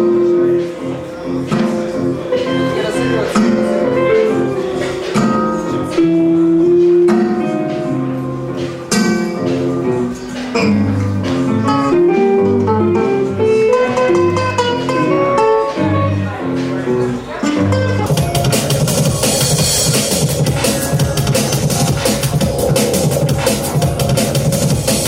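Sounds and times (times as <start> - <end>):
deep bass notes: 0.0 - 25.0
plucked guitar music: 0.0 - 25.0.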